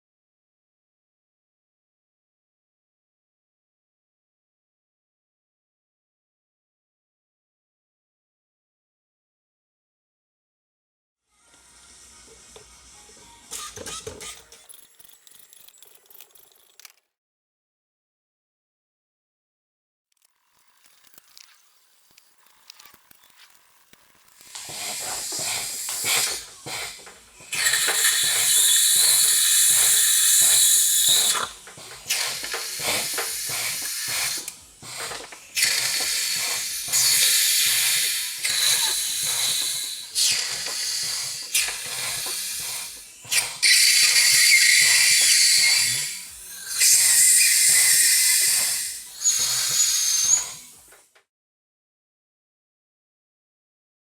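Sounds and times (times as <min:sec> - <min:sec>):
rapid small clicks: 0:20.1 - 0:24.7
loud pressurised hissing: 0:24.4 - 0:50.9.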